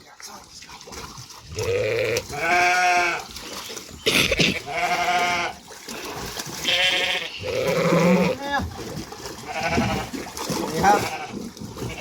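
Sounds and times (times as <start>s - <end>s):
sheep bleating: 1.6s - 3.2s, 4.4s - 5.6s, 6.6s - 8.4s, 9.4s - 10.2s, 10.8s - 12.0s.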